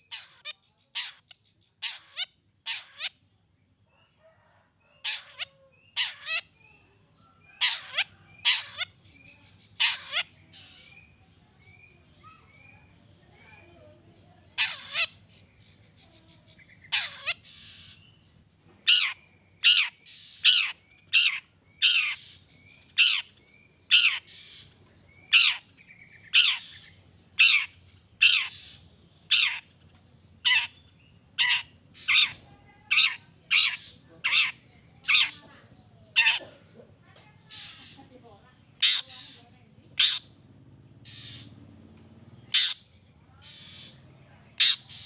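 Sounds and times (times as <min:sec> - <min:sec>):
shrike squawking: 0:09.6 - 0:11.0, 0:14.6 - 0:15.4, 0:18.9 - 0:22.4, 0:25.3 - 0:29.7, 0:30.4 - 0:30.8, 0:31.4 - 0:35.5, 0:38.8 - 0:40.4, 0:41.0 - 0:41.6, 0:42.5 - 0:45.0.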